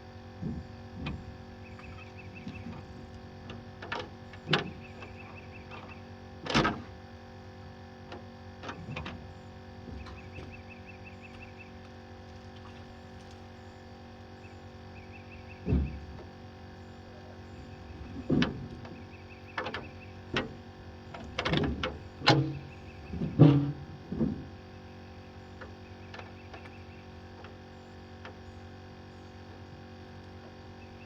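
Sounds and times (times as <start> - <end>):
hollow thuds against hull: 15.6 - 16.3.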